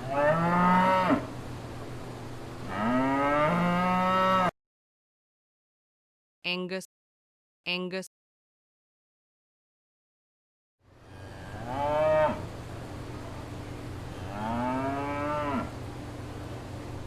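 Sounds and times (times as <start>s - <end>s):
cow mooing: 0.0s - 1.3s, 2.7s - 4.5s, 11.2s - 12.5s, 14.2s - 15.8s
background hiss and hum: 0.0s - 4.5s, 10.8s - 17.0s.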